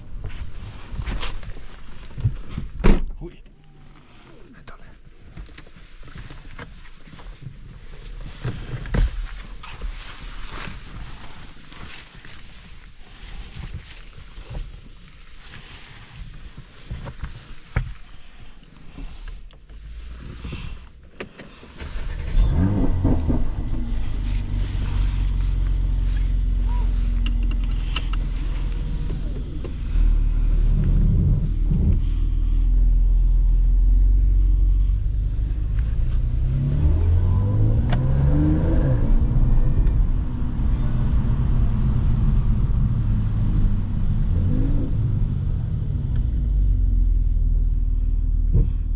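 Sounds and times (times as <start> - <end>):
interior clicks: 20.5 - 32.0
car engine revving: 21.6 - 48.1.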